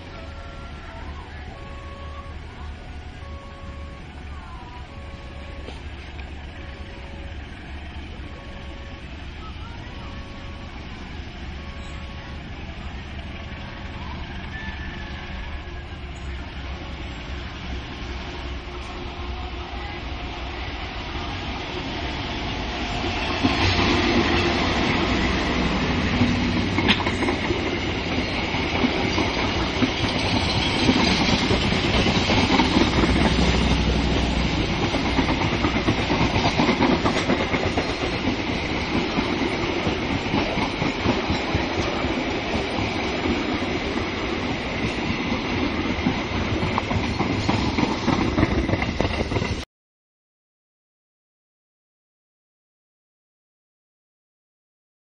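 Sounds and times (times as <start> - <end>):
train wheels clattering over rails: 21.7 - 49.6.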